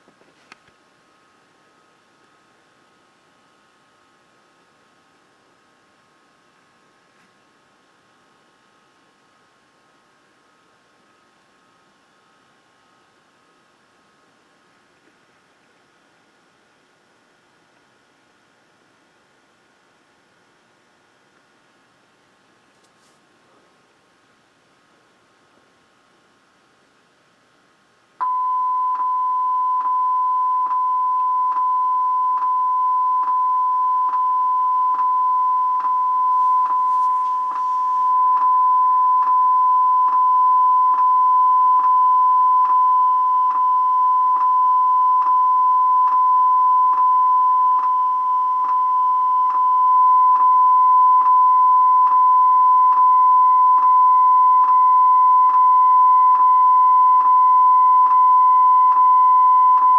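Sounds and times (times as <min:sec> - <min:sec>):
steady test tone: 0:28.2 - 0:59.9.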